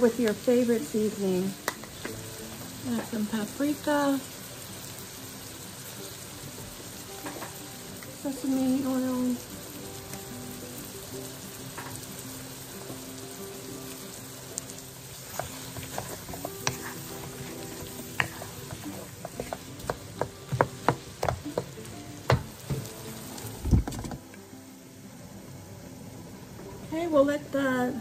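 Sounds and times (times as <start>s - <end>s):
food sizzling in a wok: 0.0s - 28.0s
utensil scraping a pan: 15.2s - 21.6s.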